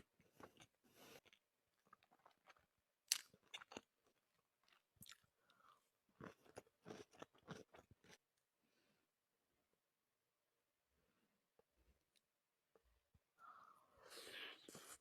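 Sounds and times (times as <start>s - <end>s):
person chewing crunchy food: 0.2s - 8.2s.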